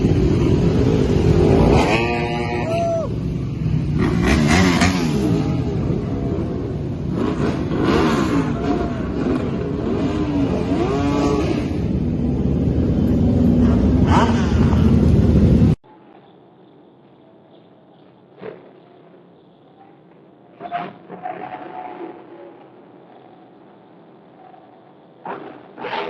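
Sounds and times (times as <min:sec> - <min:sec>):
racing motorcycles revving past: 0:00.4 - 0:02.6, 0:03.5 - 0:12.2.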